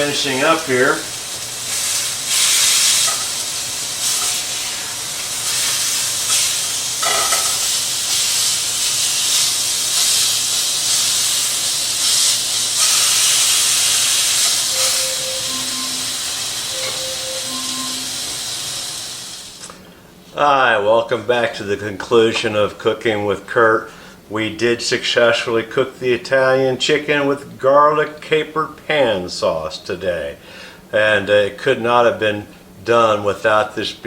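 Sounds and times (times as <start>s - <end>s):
chicken sizzling in a pan: 0.0s - 19.6s.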